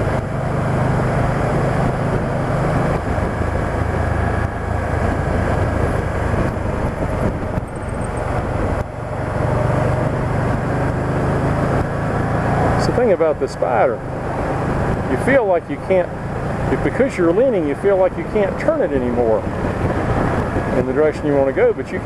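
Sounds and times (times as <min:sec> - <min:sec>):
motorcycle engine hum: 0:00.0 - 0:22.0
road noise: 0:00.0 - 0:22.0
wind rush: 0:00.0 - 0:22.0.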